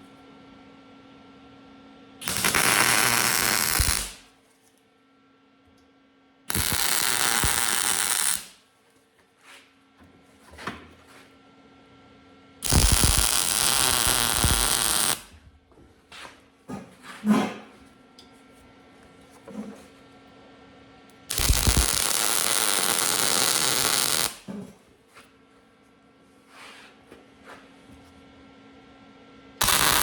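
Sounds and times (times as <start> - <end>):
welding arc crackling hiss: 2.2 - 4.2, 6.5 - 8.6, 12.6 - 15.3, 21.3 - 24.5, 29.6 - 30.0.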